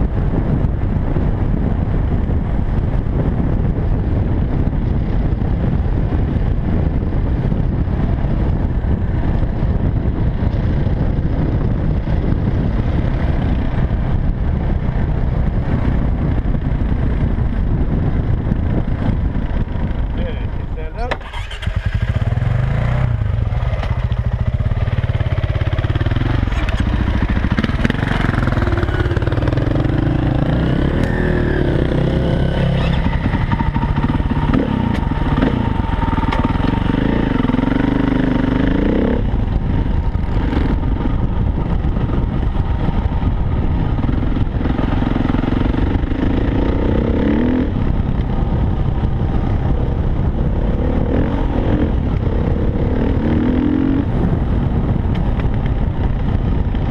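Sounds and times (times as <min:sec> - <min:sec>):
dirt bike engine revving: 0:21.2 - 0:39.4.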